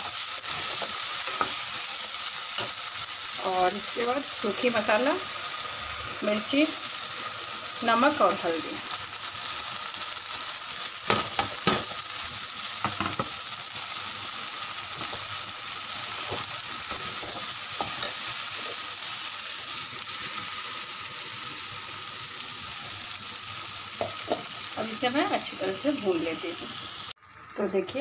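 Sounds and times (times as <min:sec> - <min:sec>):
spice paste sizzling in oil: 0:00.0 - 0:28.0.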